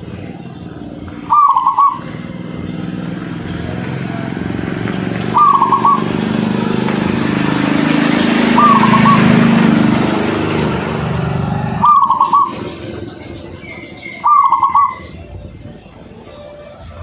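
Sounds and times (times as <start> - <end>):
motor vehicle engine: 0.0 - 17.0
dove cooing: 0.8 - 2.8, 3.6 - 6.5, 8.2 - 9.9, 11.6 - 15.3.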